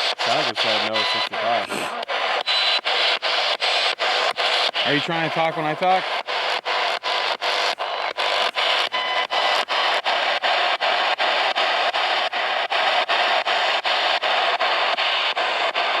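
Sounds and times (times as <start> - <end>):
radio static sweeping: 0.0 - 16.0.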